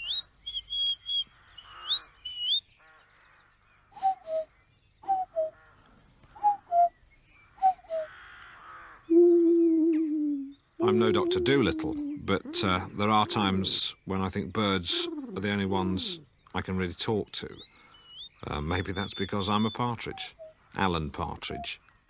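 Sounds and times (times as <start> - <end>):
low wavering hoot: 4.0 - 5.6, 6.4 - 6.9, 7.6 - 8.2, 9.1 - 14.0, 14.6 - 16.3
man imitating cuckoo calls: 4.0 - 5.6, 6.4 - 6.9, 7.6 - 8.1, 9.1 - 16.3, 18.4 - 21.8.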